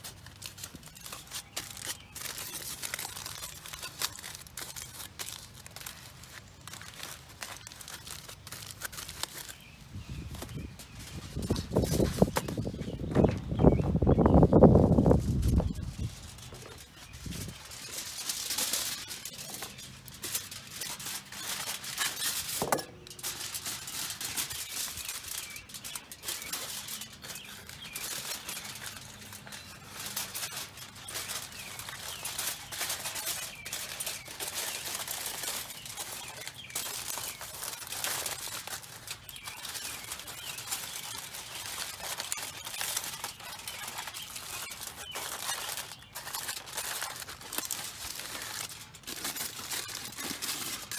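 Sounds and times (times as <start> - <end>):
aluminum foil crinkling: 0.0 - 50.9.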